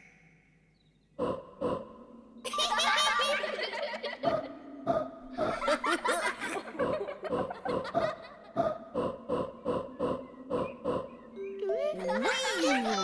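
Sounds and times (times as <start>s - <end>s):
cartoon characters laughing: 2.5s - 4.5s, 11.6s - 13.0s.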